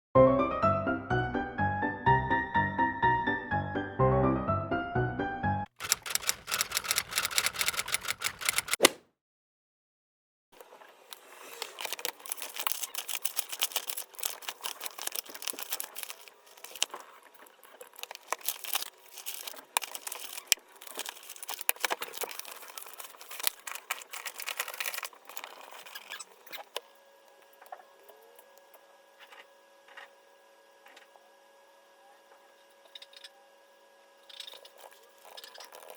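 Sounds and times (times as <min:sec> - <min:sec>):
typing on computer keyboard: 0:05.8 - 0:08.8.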